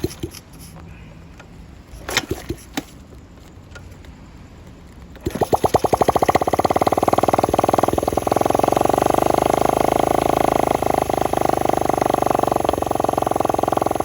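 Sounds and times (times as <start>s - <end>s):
small motorcycle engine idling: 5.2s - 14.0s.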